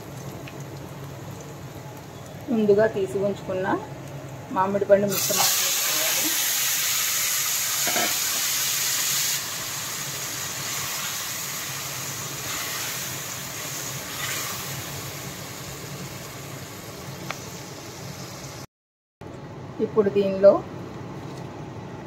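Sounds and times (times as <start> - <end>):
food sizzling in hot oil: 0.0 - 18.7.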